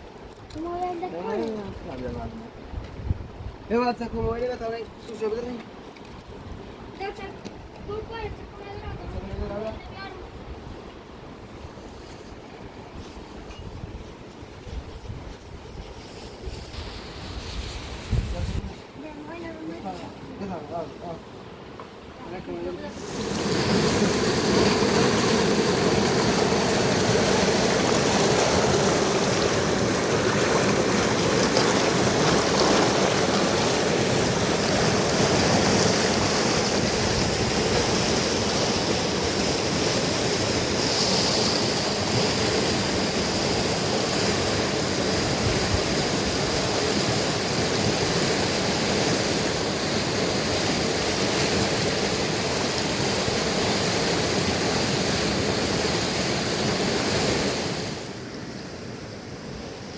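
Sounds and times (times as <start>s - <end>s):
river rushing: 19.6s - 59.9s.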